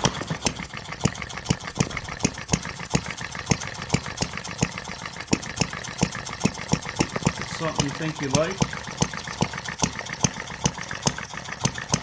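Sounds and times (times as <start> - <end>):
model engine firing pops: 0.0 - 8.2.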